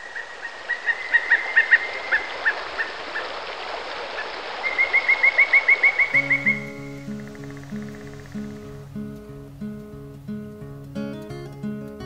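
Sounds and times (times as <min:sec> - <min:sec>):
bird chirping: 0:04.2 - 0:10.9
soft background hiss: 0:05.2 - 0:12.0.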